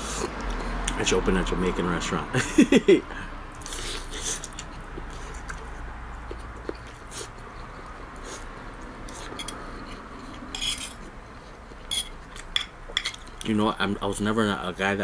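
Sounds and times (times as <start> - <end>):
person chewing meat: 3.5 - 13.4.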